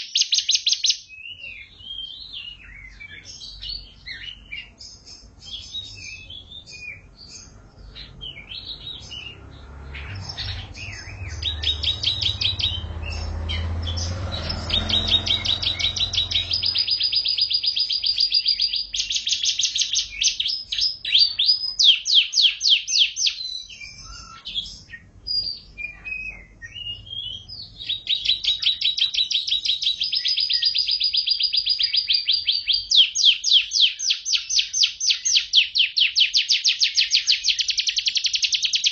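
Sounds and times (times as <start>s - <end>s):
canary singing with trills: 0.0s - 38.9s
low rumble: 7.5s - 17.3s.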